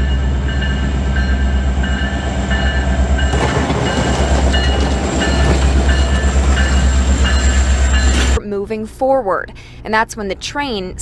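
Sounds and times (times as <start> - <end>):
train engine drone: 0.0 - 8.4
train wheels rolling: 0.6 - 8.4.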